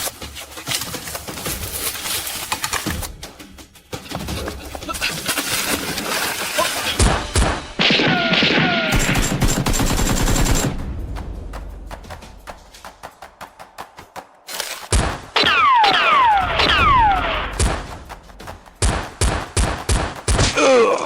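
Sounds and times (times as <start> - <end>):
rapid gunfire: 6.3 - 20.8
heavy blasts: 14.9 - 20.6.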